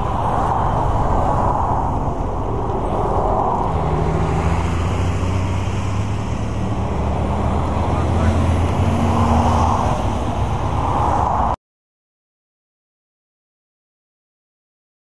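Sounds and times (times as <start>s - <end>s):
wind rush on microphone: 0.0s - 11.6s.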